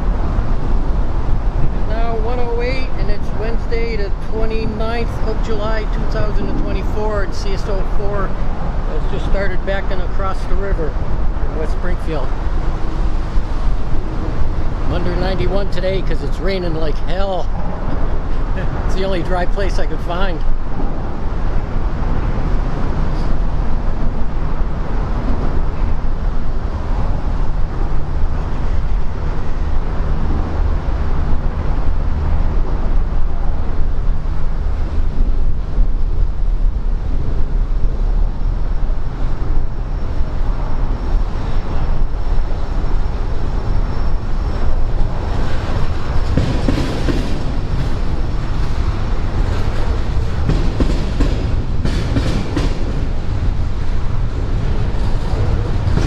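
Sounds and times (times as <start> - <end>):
diesel locomotive rumble: 0.0 - 56.0
faint high whine: 35.9 - 46.5
train wheels clacking on rails: 44.8 - 56.0.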